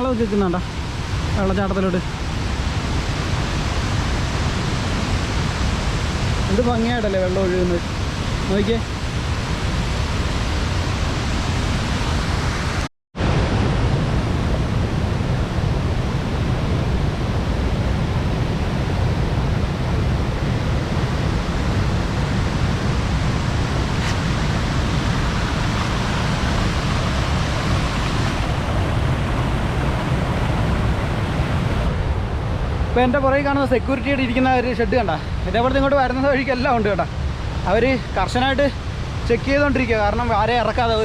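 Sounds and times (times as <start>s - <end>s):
waterfall rushing: 0.1s - 17.6s, 18.5s - 32.0s.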